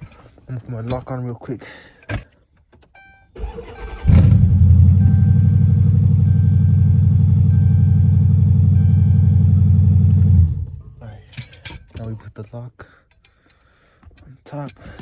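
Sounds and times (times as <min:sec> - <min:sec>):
car engine cranking and idling: 0:02.9 - 0:12.2
electronic chime: 0:04.9 - 0:10.3.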